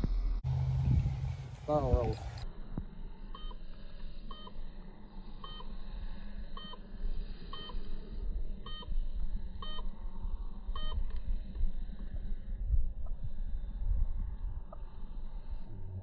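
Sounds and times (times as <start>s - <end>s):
wind rumble on microphone: 0.0s - 3.0s, 5.9s - 16.0s
short electronic beeps: 6.6s - 6.8s, 8.6s - 8.9s.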